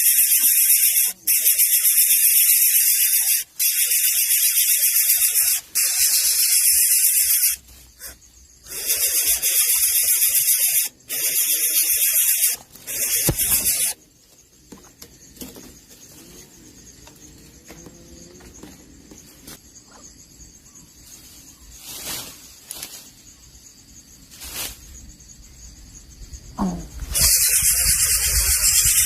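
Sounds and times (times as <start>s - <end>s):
nestling birds begging calls: 0.0s - 14.0s, 27.0s - 29.0s.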